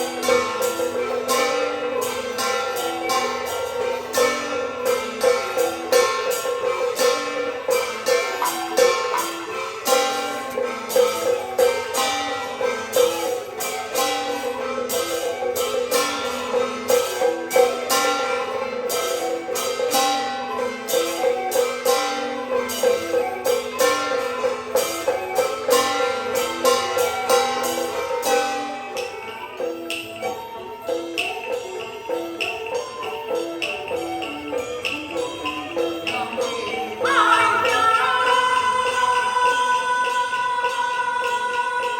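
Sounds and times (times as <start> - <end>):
percussion strikes: 0.0 - 41.9
string instruments melody: 0.0 - 41.9.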